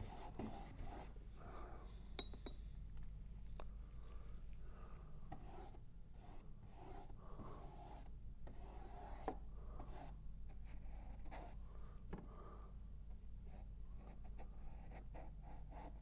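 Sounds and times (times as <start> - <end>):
paintbrush scrubbing paint: 0.0 - 1.2.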